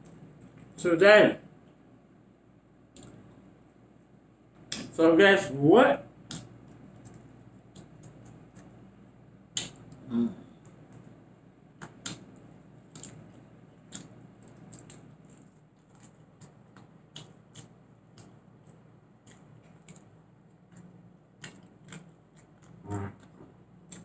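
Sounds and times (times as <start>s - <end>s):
faint low hum: 0.0s - 24.0s
chewing and mouth clicks: 2.9s - 3.5s, 6.3s - 8.9s, 11.8s - 24.0s.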